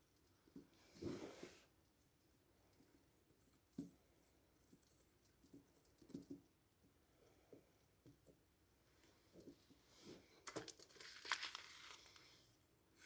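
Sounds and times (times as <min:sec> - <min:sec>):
soft scrape of frosting: 0:00.7 - 0:01.8.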